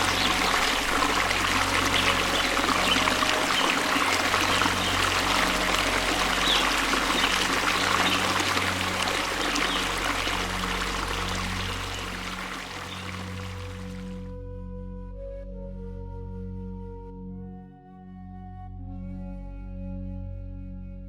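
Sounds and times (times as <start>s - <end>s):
waterfall rushing: 0.0s - 14.2s.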